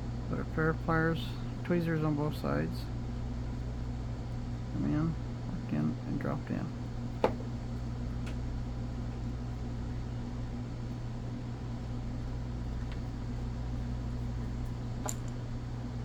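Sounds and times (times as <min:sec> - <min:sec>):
low machine hum: 0:00.0 - 0:16.0
faint clicks of small parts: 0:14.6 - 0:15.4.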